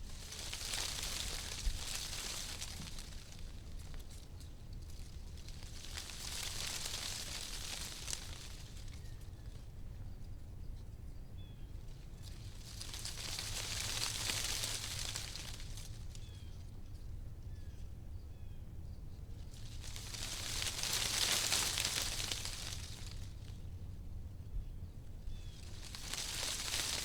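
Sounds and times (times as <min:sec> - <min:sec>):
wind rustling tree leaves: 0:00.0 - 0:10.4, 0:11.3 - 0:17.4, 0:18.9 - 0:27.0
low wind rumble: 0:00.0 - 0:27.0.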